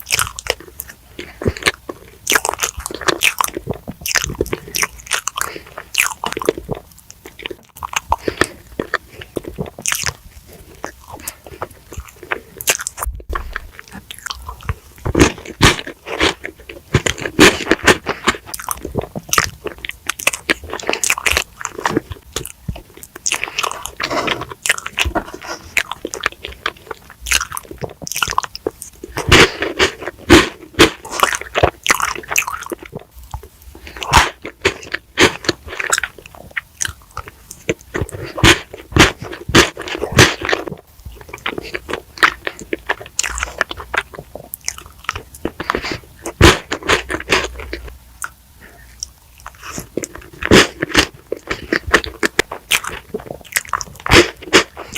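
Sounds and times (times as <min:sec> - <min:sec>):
person chewing crunchy food: 0:00.0 - 0:54.9.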